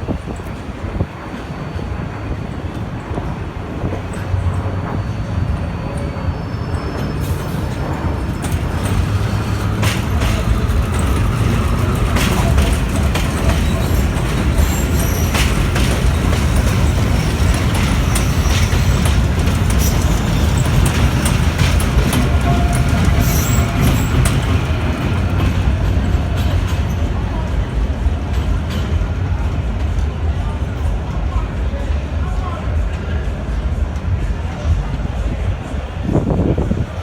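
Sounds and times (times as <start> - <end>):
subway car rumbling on rails: 0.0 - 37.0.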